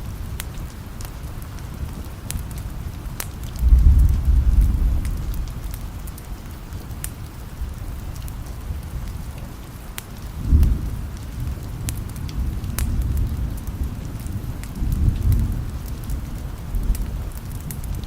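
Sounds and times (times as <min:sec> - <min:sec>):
steady rain: 0:00.0 - 0:18.0
wood fire crackling: 0:00.0 - 0:18.0
distant thunder rumble: 0:03.6 - 0:06.4.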